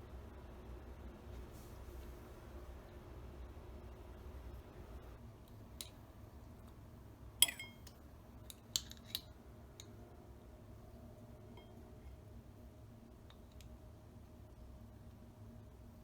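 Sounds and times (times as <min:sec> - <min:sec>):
kitchenware metallic clinks: 0:07.4 - 0:07.9.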